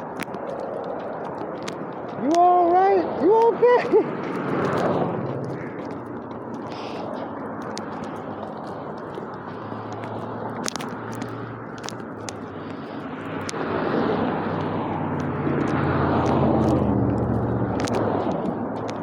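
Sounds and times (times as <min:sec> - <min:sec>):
vehicle engine passing by: 0:02.2 - 0:19.0
small clicks: 0:04.2 - 0:13.6, 0:15.2 - 0:19.0.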